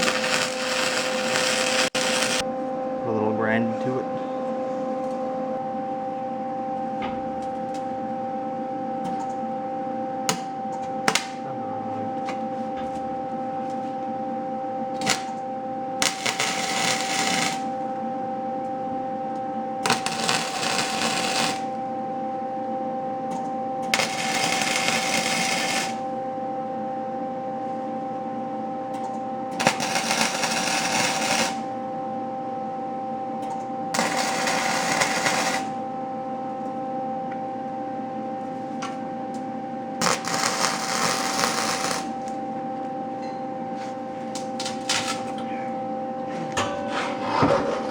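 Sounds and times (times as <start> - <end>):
welding arc crackle: 0.0 - 2.4, 11.1 - 11.4, 15.0 - 15.4, 16.0 - 17.8, 19.8 - 21.8, 24.0 - 26.0, 29.6 - 31.6, 34.0 - 35.8, 40.0 - 42.4
welder hum: 0.0 - 2.5, 10.3 - 12.2, 14.9 - 15.4, 16.0 - 17.8, 19.8 - 21.8, 23.8 - 26.1, 29.5 - 31.7, 33.9 - 35.9, 40.0 - 42.5
metal clanks: 46.4 - 47.9.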